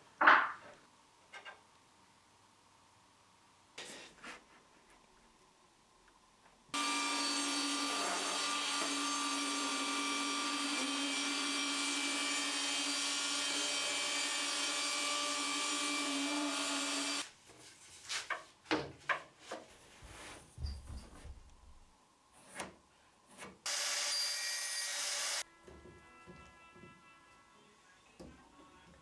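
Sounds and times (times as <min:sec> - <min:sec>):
table saw cutting wood: 0:06.8 - 0:17.2, 0:23.7 - 0:25.4.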